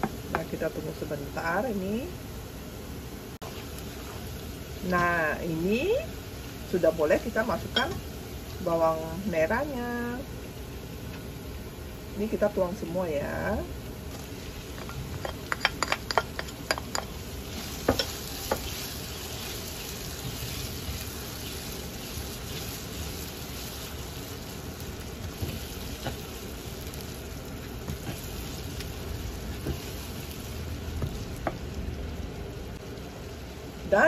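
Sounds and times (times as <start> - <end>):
shallots sizzling in hot oil: 0.0 - 34.0
spatula knocking on pan: 17.8 - 18.7.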